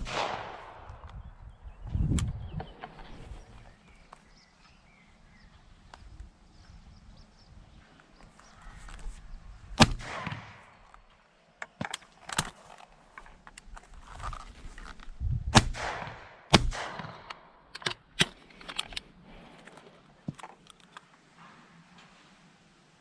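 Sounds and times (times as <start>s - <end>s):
gunshots with echo: 0.0s - 1.0s, 9.8s - 10.7s, 15.6s - 17.5s
sharp clicks and knocks: 16.0s - 21.1s.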